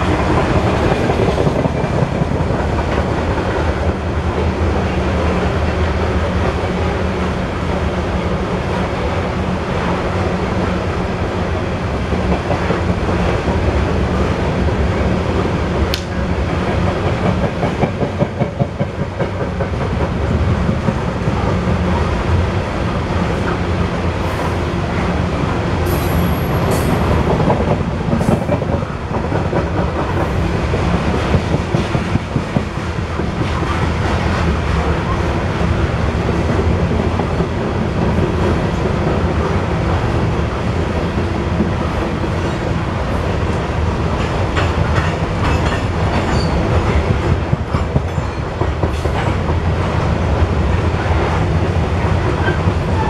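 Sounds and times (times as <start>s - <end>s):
train cars rumbling: 0.0s - 53.0s
wheels clattering on rails: 44.0s - 53.0s.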